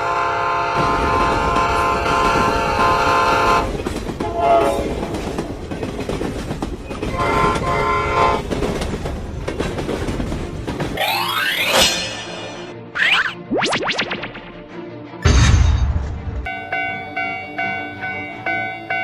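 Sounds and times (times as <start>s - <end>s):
train horn: 0.0s - 5.2s, 6.9s - 8.5s
train wheels clattering on rails: 0.7s - 11.0s.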